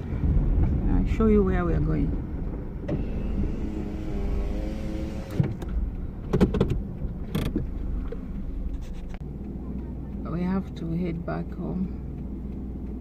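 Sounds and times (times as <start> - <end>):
car engine low rumble: 0.0 - 13.0
sharp clicks and knocks: 2.3 - 9.2.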